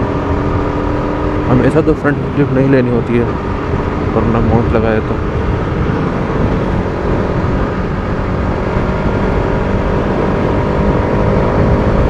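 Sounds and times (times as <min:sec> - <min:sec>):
motorcycle engine running: 0:00.0 - 0:12.0
road rumble: 0:00.0 - 0:12.0
wind: 0:00.0 - 0:12.0.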